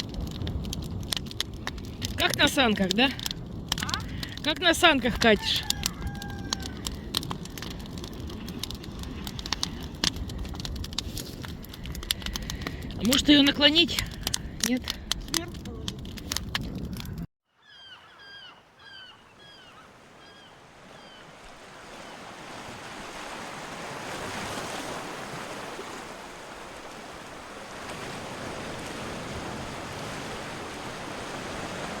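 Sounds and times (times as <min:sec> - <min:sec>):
bird calling: 0:17.6 - 0:22.2
sea surf washing in: 0:21.0 - 0:32.0.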